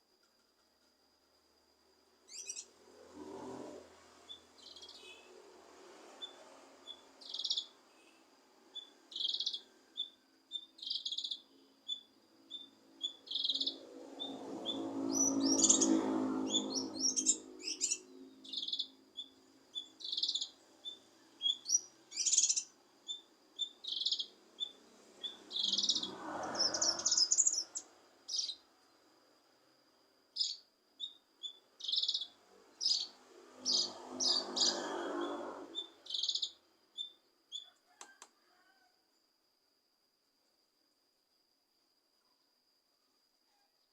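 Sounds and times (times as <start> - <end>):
songbird low noisy phrases: 2.0 - 38.9
songbird high chirps: 2.3 - 2.7, 4.2 - 5.3, 6.2 - 28.7, 30.3 - 38.2.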